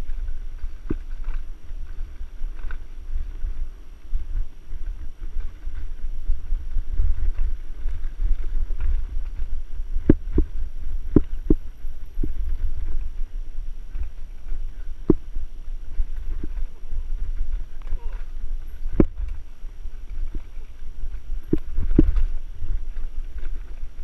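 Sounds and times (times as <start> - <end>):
bike knocks and rattles: 0.0 - 13.3
low rumble: 0.0 - 24.0
wind buffeting microphone: 0.0 - 24.0.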